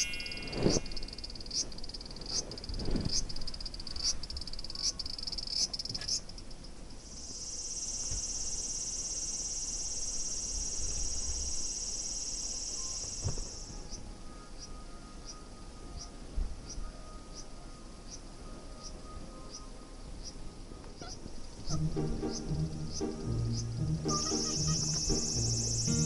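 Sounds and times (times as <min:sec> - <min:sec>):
cicada singing: 0:00.0 - 0:14.0, 0:21.0 - 0:26.0.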